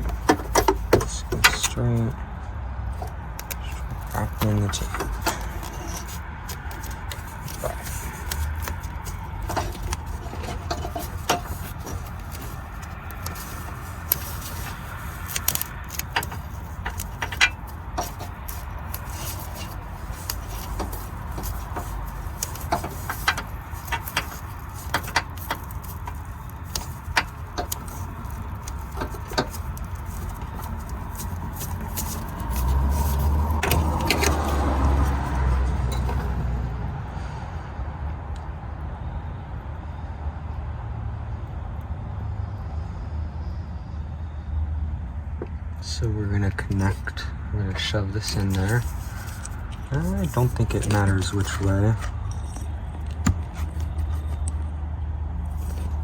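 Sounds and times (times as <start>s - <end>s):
clicks and rattles of wiring harness: 0.0s - 2.2s, 3.0s - 36.5s, 46.5s - 47.2s, 47.8s - 54.8s, 55.4s - 56.0s.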